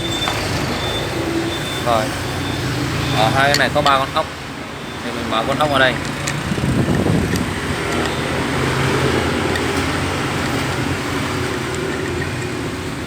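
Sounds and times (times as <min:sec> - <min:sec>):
street traffic passing: 0:00.0 - 0:13.0.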